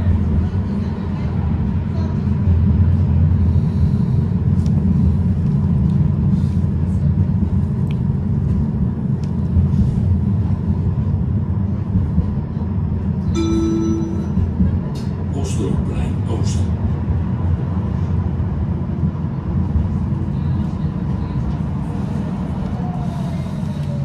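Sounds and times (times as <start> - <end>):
tram wheels rumbling on rail: 0.0 - 24.0
short tone: 13.4 - 14.8.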